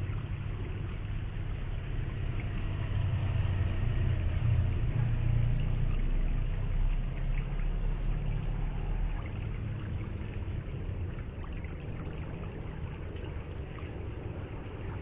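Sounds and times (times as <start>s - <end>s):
flowing river water: 0.0s - 15.0s
passing vehicle rumble: 0.0s - 15.0s.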